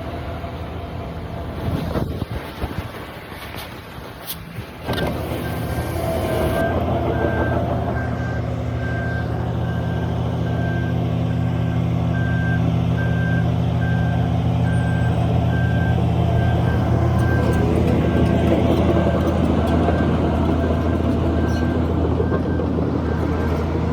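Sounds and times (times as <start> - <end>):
diesel engine running: 4.8 - 23.9
reverse alarm beeping: 5.4 - 18.4.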